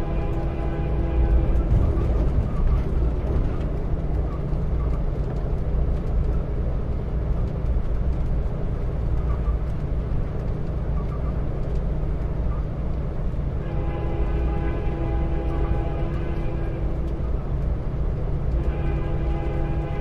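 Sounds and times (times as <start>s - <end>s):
train horn chord: 0.0s - 1.7s, 13.6s - 17.1s, 18.5s - 20.0s
train rumbling: 0.0s - 20.0s.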